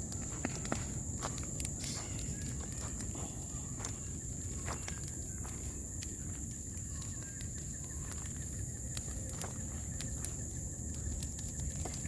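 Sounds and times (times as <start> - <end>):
fire snapping and popping: 0.0 - 12.0
high-pitched hiss: 0.0 - 12.0
low fire rumble: 0.0 - 12.0.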